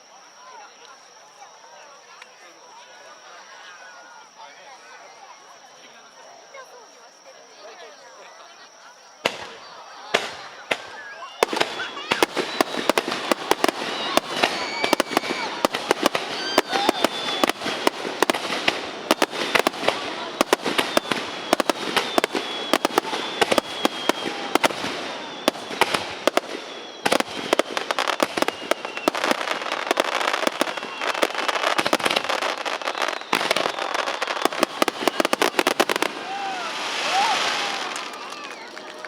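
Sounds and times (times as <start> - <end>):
fireworks bangs and crackling: 9.2 - 39.0
high falling whistle: 10.8 - 38.8.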